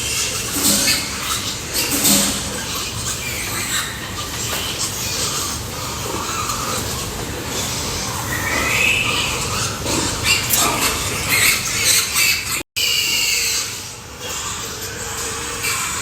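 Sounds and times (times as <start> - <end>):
pigs squealing: 0.0 - 16.0.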